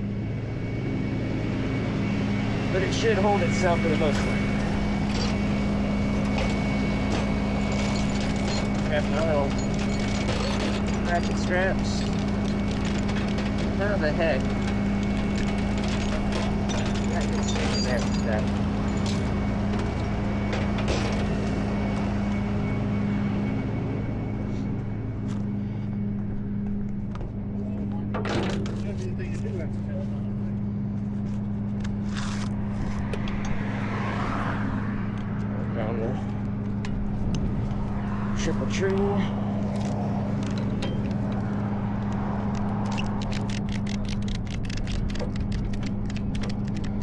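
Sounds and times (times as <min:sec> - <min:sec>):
truck engine running: 0:00.0 - 0:47.0
truck engine idling: 0:00.9 - 0:23.3
gear clicking and knocking: 0:02.8 - 0:22.4, 0:39.6 - 0:47.0
ratchet strap clicking: 0:42.0 - 0:47.0.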